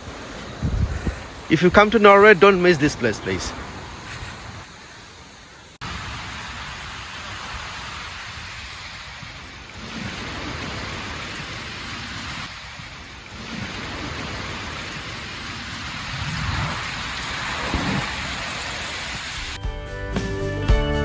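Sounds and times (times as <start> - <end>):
heavy rain: 0.0 - 19.6
rushing water: 0.0 - 19.6
low rumbles: 15.6 - 19.6.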